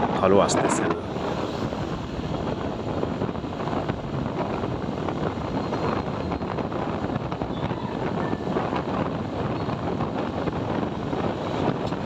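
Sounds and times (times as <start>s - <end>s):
motorcycle riding: 0.0s - 12.0s
wind buffeting microphone: 0.0s - 12.0s.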